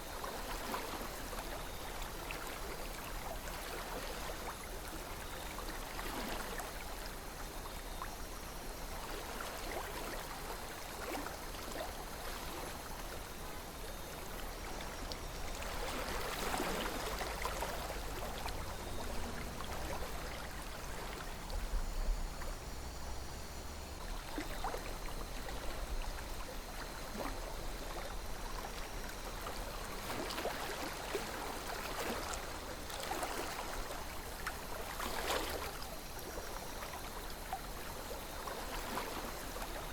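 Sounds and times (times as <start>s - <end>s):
river water gurgling: 0.0s - 39.9s
small water splashes: 9.1s - 21.6s, 24.0s - 39.9s.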